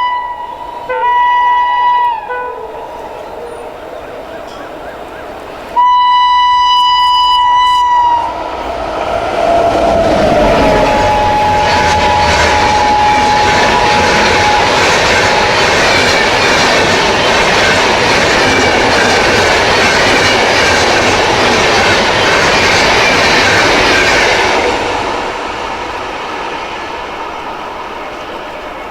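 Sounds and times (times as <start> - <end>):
shrill train horn: 0.0 - 19.2
train wheels clattering and squealing: 2.0 - 5.4, 7.7 - 28.9.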